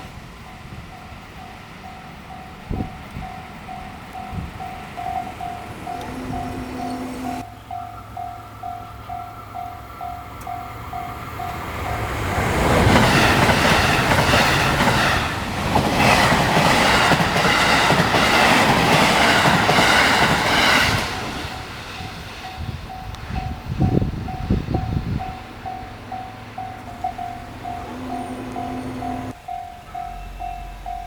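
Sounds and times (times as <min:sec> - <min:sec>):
level crossing warning bell: 0:00.0 - 0:12.3, 0:16.0 - 0:31.0
train wheels clattering on rails: 0:00.0 - 0:31.0.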